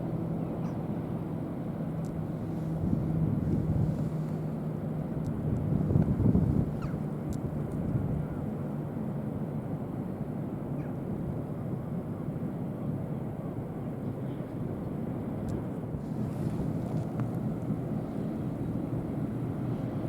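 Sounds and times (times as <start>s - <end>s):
ship engines rumbling: 0.0s - 7.4s, 15.8s - 20.0s.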